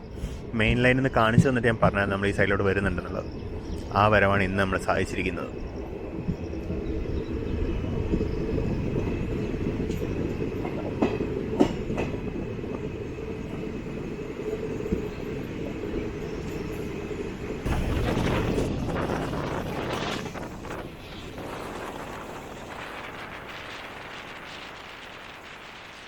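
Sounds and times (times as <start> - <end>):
train wheels rumbling on rail: 0.0 - 26.0
sharp rail clicks: 9.8 - 12.8.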